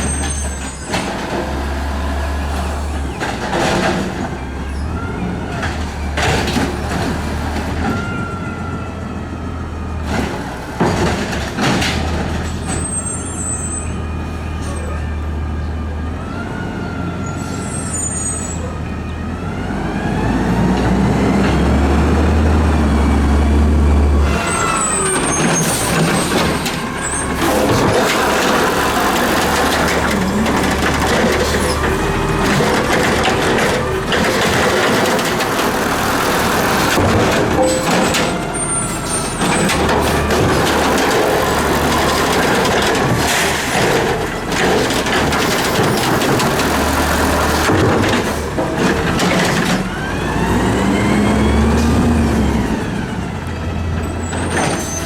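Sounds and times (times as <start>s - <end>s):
garbage truck diesel engine: 0.0s - 55.0s
loud mechanical noise: 20.0s - 55.0s
high squeals: 24.2s - 42.7s.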